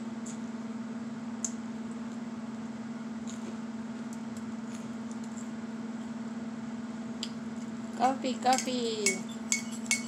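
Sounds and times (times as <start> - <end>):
crunchy chewing of toast: 3.1 - 5.6.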